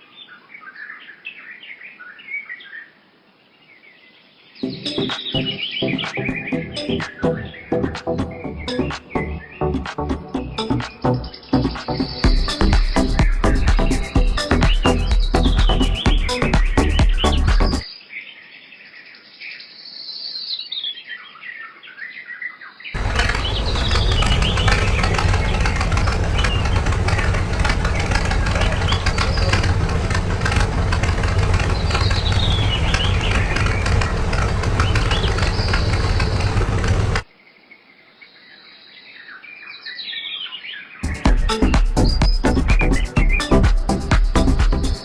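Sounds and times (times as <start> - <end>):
birds chirping: 0.0 - 45.0
machine humming and ticking: 23.0 - 37.2.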